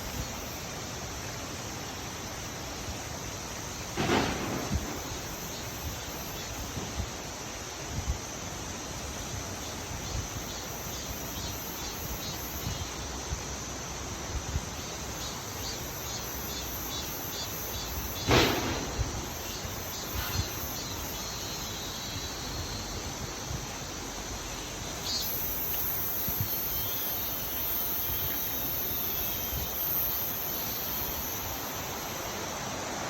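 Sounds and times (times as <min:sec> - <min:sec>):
insects chirping in pulses: 0:00.0 - 0:33.0
outdoor background noise: 0:00.0 - 0:33.0
sharp knock: 0:18.2 - 0:19.1.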